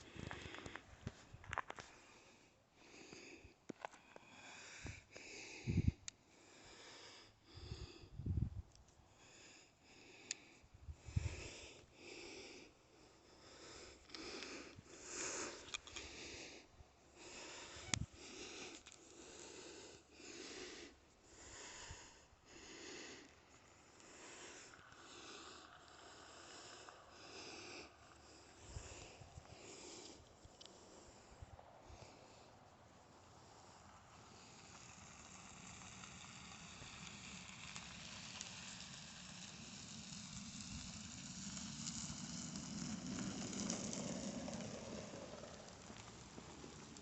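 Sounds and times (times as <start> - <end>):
person breathing: 0.0 - 8.4, 9.0 - 34.7.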